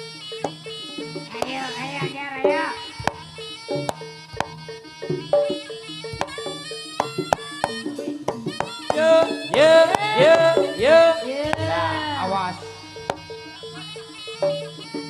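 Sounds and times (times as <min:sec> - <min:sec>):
gamelan notes: 0:00.0 - 0:15.0
melody with sliding notes: 0:00.0 - 0:15.0
sharp drum strokes: 0:07.0 - 0:13.4.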